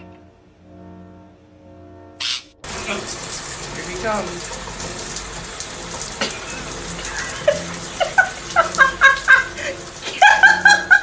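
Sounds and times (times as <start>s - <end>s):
parrot calling: 2.2s - 2.6s.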